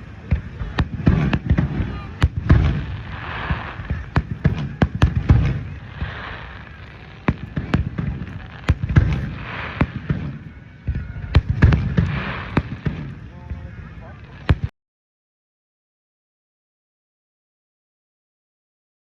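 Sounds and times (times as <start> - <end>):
hissing crackle from shells: 0.0 - 14.6
deep fireworks booms: 0.0 - 14.7
fireworks bangs and cracks: 0.0 - 14.7.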